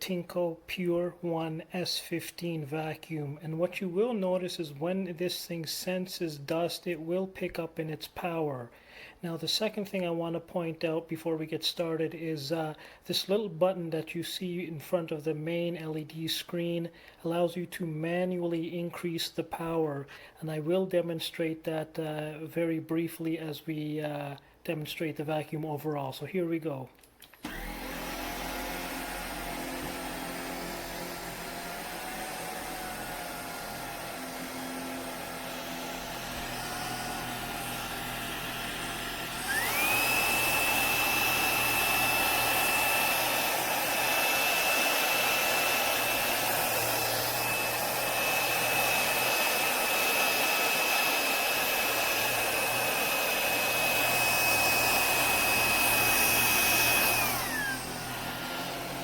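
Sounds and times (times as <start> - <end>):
vacuum cleaner motor whine: 27.4 - 59.0.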